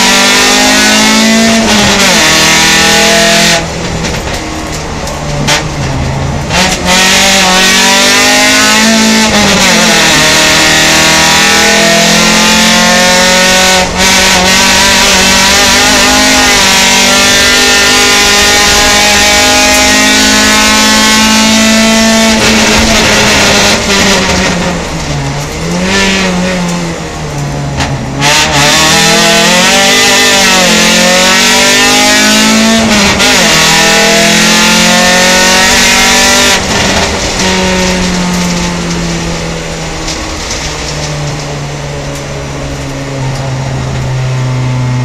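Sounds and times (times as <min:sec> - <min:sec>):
car engine revving: 0:00.0 - 0:45.0.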